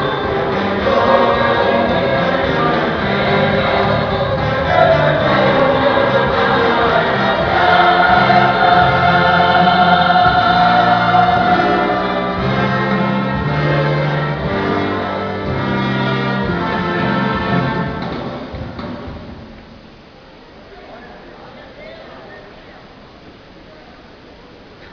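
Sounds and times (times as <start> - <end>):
bass line: 0.0 - 18.5
youth choir singing gospel: 0.0 - 18.5.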